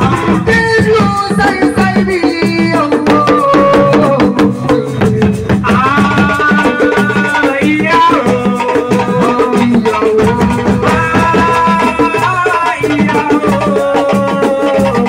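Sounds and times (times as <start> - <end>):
driving percussion beat: 0.0 - 15.0.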